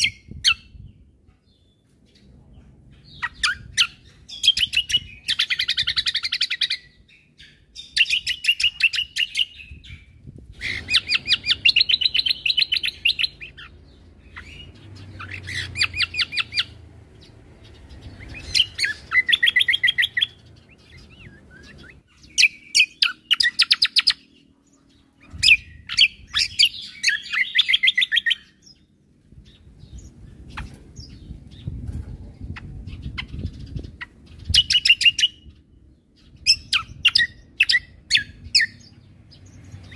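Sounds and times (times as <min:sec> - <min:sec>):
bird chattering trills: 0:03.1 - 0:28.8.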